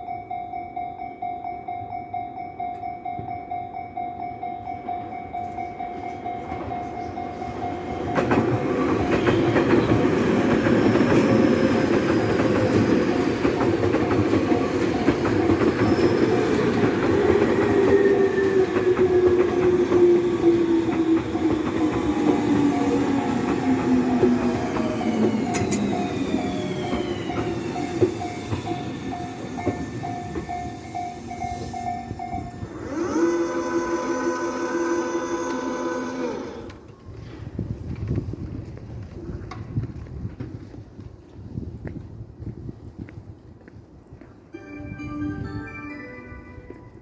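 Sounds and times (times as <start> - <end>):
level crossing warning bell ringing: 0.0 - 10.0, 11.8 - 33.3, 44.6 - 47.0
electric train rumble and wheel clatter: 0.1 - 43.4
train whine falling in pitch: 5.4 - 36.8.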